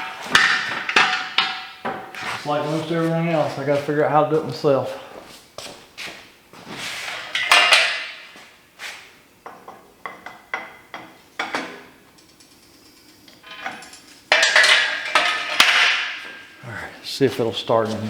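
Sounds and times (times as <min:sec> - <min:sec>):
metal parts clanking: 0:12.2 - 0:16.4.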